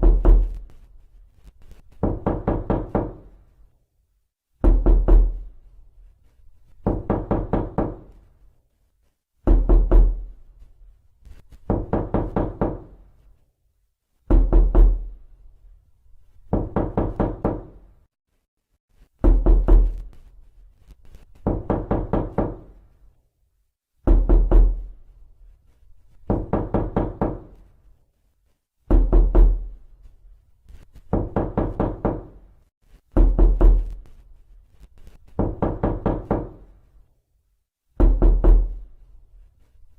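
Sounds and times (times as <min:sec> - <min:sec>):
knocking on a door: 0:00.0 - 0:00.6, 0:01.9 - 0:03.4, 0:04.6 - 0:05.5, 0:06.8 - 0:08.2, 0:09.4 - 0:10.3, 0:11.6 - 0:13.0, 0:14.3 - 0:15.1, 0:16.5 - 0:17.8, 0:19.2 - 0:20.1, 0:21.4 - 0:22.8, 0:24.0 - 0:24.9, 0:26.2 - 0:27.6, 0:28.9 - 0:29.8, 0:31.0 - 0:32.5, 0:33.1 - 0:34.0, 0:35.3 - 0:36.7, 0:37.9 - 0:38.8.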